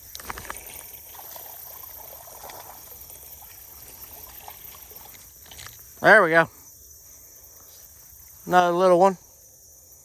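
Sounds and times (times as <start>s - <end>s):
water splashing and trickling: 0.0s - 6.6s
insects chirring: 0.0s - 10.0s.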